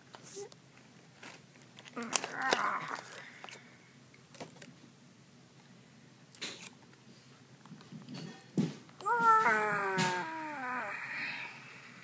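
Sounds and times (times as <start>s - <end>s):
plastic toy figures knocking: 8.6s - 10.4s.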